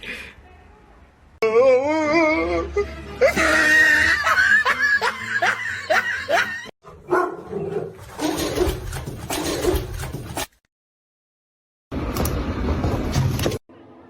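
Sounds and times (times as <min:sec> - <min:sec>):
dog barking and yipping: 0:06.8 - 0:10.2.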